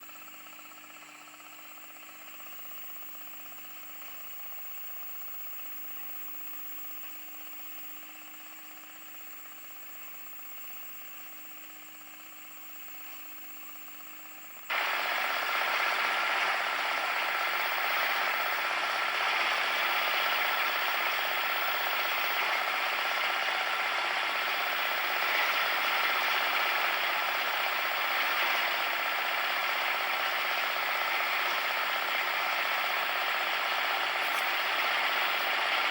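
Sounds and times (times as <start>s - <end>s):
cement mixer gears clattering: 14.7s - 35.9s.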